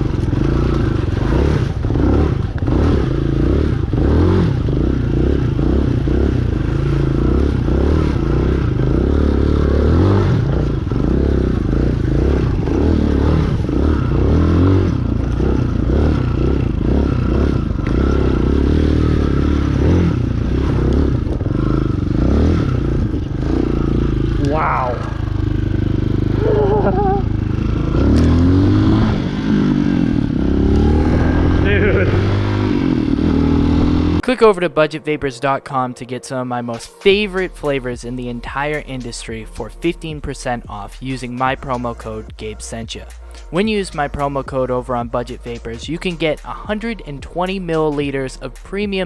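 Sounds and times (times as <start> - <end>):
dirt bike engine revving: 0.0 - 34.3.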